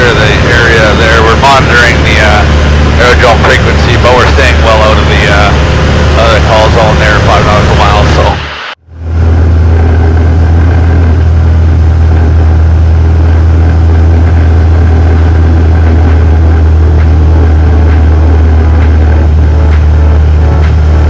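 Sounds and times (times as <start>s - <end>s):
light aircraft engine and propeller: 0.0s - 21.0s.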